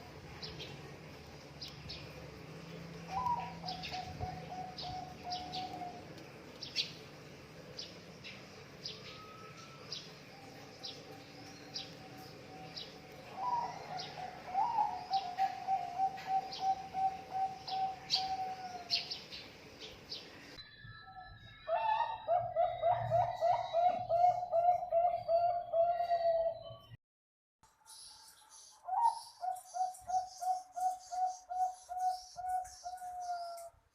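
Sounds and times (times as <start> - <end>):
small birds chirping: 0.0 - 23.1, 27.8 - 33.8
doves cooing: 2.8 - 6.2, 9.2 - 19.2, 21.7 - 26.7.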